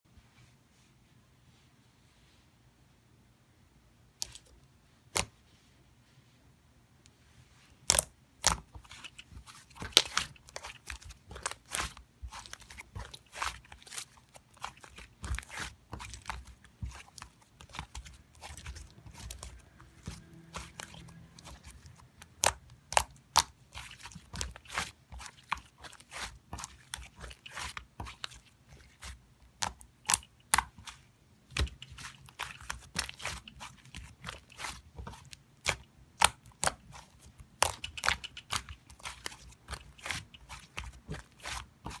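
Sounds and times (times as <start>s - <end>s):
sharp crunches and clicks: 29.6s - 42.0s.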